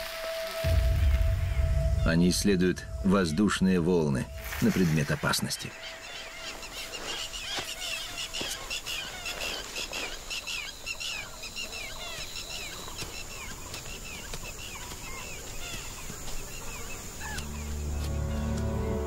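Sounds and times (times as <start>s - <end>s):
soft music: 0.0s - 5.8s, 17.2s - 19.0s
small birds chirping: 2.9s - 19.0s.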